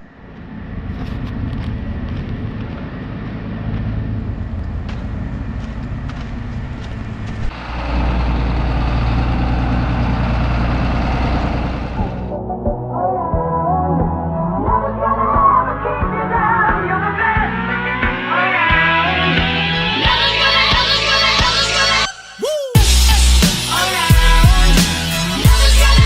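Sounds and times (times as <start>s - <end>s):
vehicle engine running: 0.0s - 12.3s.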